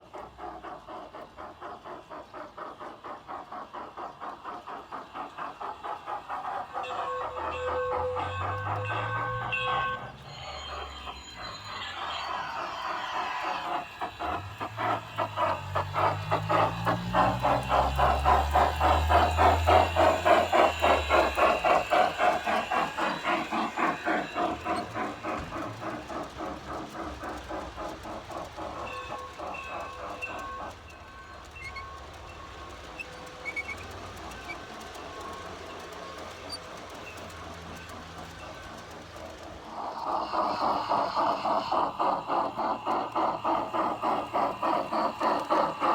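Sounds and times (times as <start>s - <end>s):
steam chuffing: 0.0s - 45.9s
train clicking on track: 0.0s - 45.9s.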